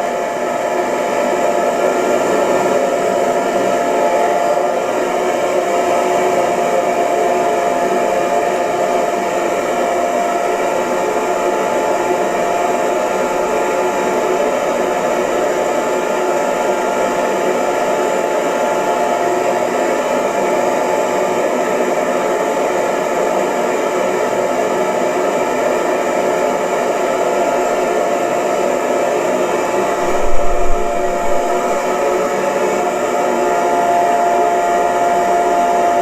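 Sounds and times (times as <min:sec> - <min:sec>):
hair dryer running: 0:00.0 - 0:36.0
low thump: 0:30.0 - 0:31.9.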